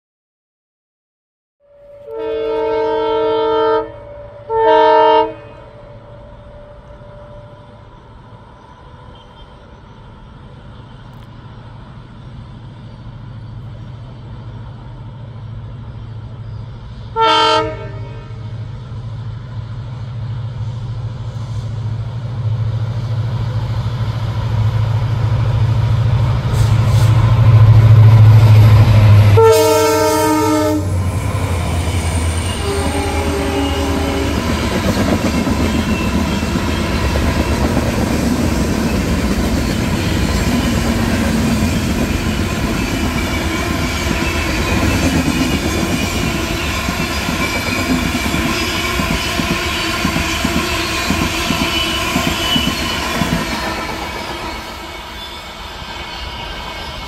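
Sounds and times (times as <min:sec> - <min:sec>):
train horn blast: 0:01.6 - 0:07.8, 0:17.1 - 0:18.6, 0:26.5 - 0:36.8
locomotive engine hum: 0:02.1 - 0:56.0
train wheels clattering: 0:30.9 - 0:57.0.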